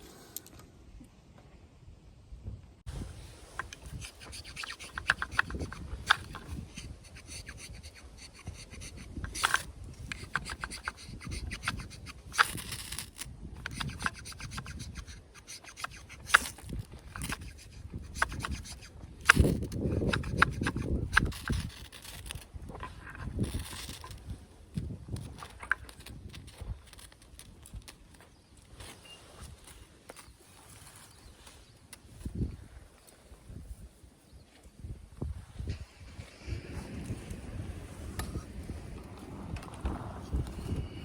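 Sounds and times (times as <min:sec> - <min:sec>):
knife blade scraping wood: 0:03.4 - 0:30.4.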